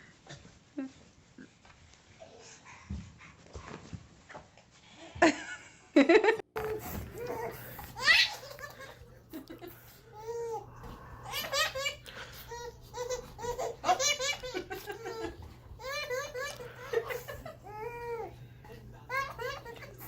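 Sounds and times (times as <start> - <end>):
baby laughing: 6.6 - 18.4, 19.1 - 20.0.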